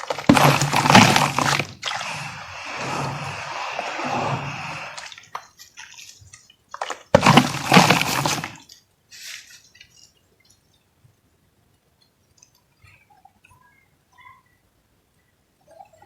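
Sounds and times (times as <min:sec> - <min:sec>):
dry material crushed by hand: 0:00.0 - 0:02.3, 0:06.7 - 0:09.5.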